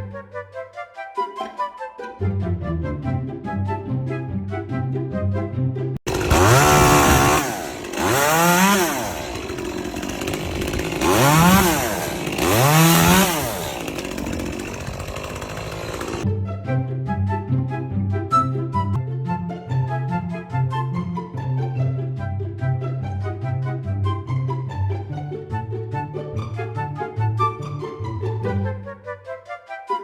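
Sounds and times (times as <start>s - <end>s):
background music: 0.0s - 6.7s, 16.3s - 30.0s
loud rasping noise: 6.1s - 16.2s
small engine tool revving: 6.1s - 16.3s.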